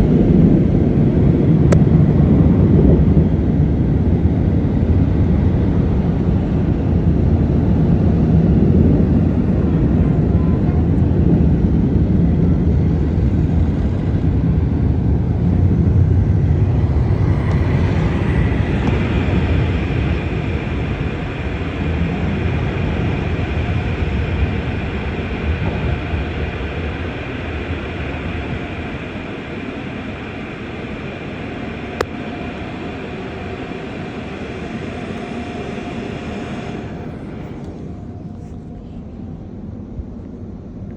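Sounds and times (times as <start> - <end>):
car wash machinery rumbling: 0.0 - 39.3
high whine: 0.0 - 40.9
click: 32.0 - 32.2.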